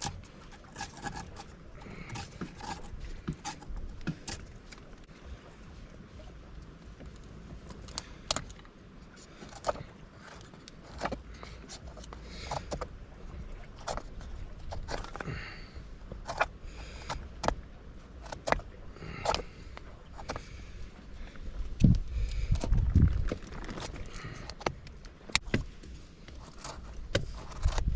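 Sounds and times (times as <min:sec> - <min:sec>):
firewood cracking: 0:00.0 - 0:05.1, 0:07.1 - 0:27.9
rustling: 0:07.1 - 0:27.9.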